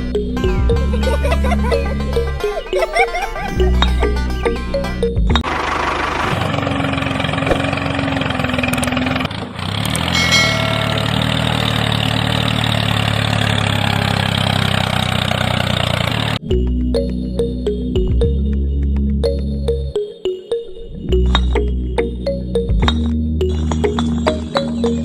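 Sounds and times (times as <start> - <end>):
engine running: 0.0 - 18.4.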